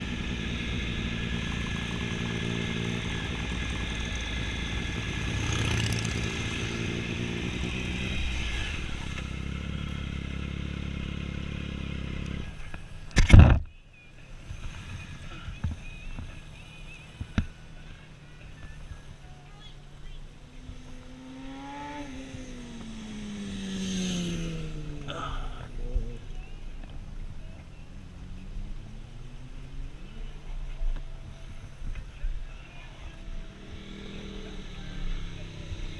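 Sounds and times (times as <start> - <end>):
motorcycle engine running: 0.0 - 35.9.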